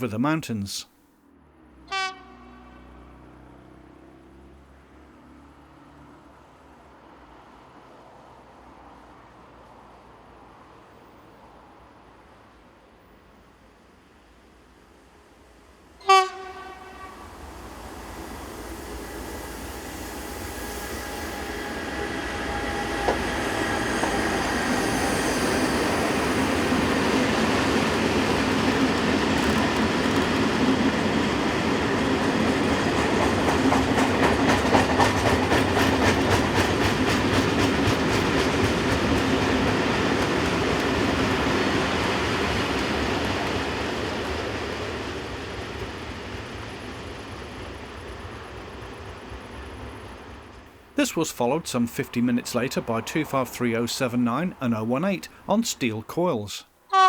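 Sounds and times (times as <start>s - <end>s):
train horn blast: 1.9s - 3.3s, 16.0s - 17.4s
freight train rumbling past: 15.8s - 55.5s.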